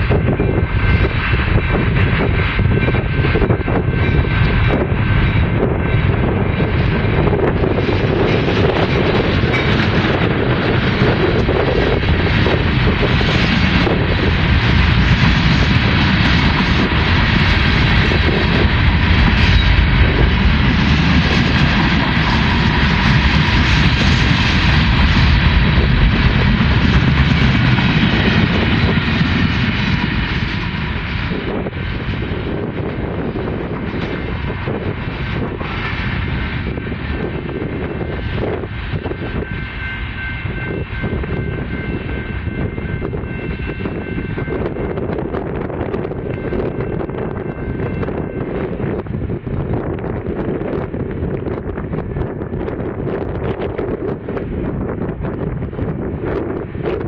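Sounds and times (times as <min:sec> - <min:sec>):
freight train rumbling past: 0:00.0 - 0:57.0.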